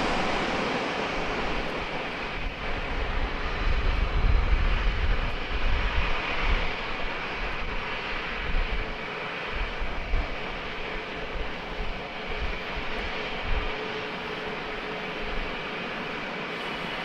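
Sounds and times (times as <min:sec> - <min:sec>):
steady hiss: 0:00.0 - 0:04.1
jet engine roar: 0:00.0 - 0:17.0.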